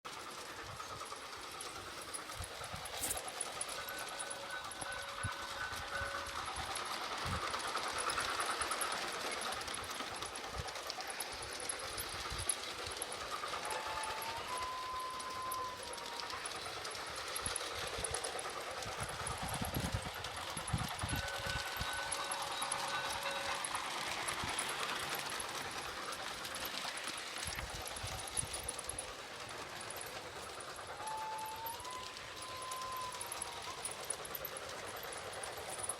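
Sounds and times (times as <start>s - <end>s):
model train motor whirring: 0.1s - 35.9s
fast light clicking of wheels: 15.2s - 35.9s.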